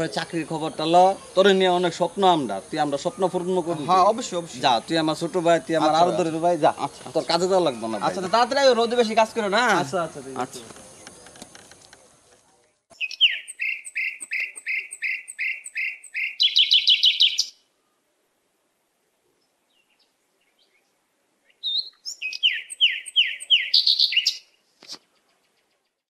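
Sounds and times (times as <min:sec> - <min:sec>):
songbird singing trill: 0:12.6 - 0:17.7, 0:19.4 - 0:26.0.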